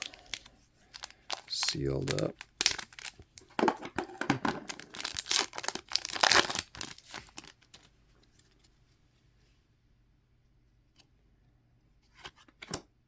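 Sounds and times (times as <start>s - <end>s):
plastic wrapping tearing and crinkling: 0.0s - 7.9s.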